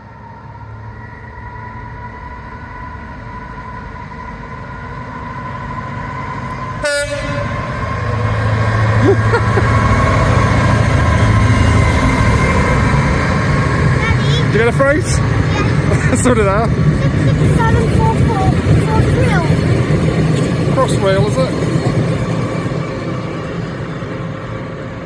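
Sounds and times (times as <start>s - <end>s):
diesel locomotive engine: 0.0s - 25.0s
locomotive horn blast: 6.8s - 7.8s.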